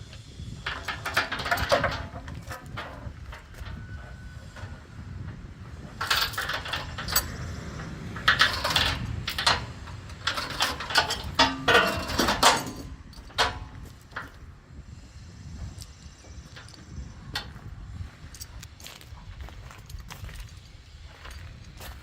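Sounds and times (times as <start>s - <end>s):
low steady rumble: 0.0s - 22.0s
metal chains clanking: 0.6s - 4.8s, 5.8s - 14.4s.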